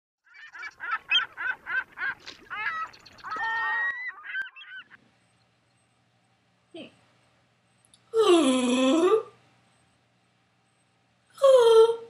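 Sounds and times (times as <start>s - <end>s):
bird calling: 0.2s - 5.4s.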